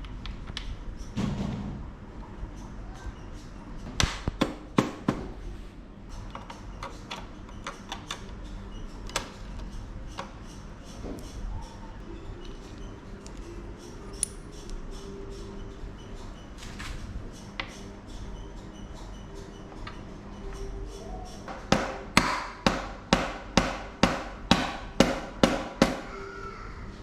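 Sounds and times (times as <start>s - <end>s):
hammer strikes on metal: 4.0s - 5.3s, 21.5s - 26.2s.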